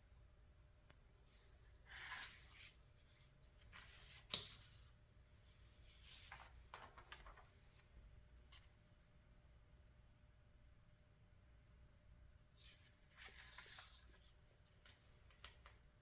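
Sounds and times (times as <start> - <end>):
paper pages rustling: 5.7 - 8.8, 12.6 - 15.9.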